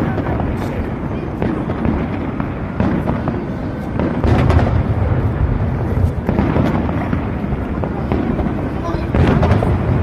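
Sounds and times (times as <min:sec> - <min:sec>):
fireworks rumbling booms: 0:00.0 - 0:10.0
sharp firework cracks: 0:00.0 - 0:10.0.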